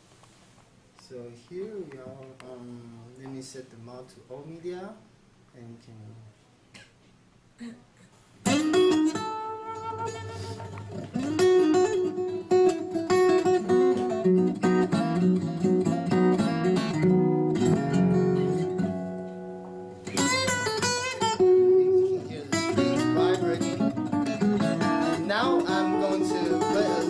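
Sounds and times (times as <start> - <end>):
guitar music through soundbar: 8.4 - 27.0.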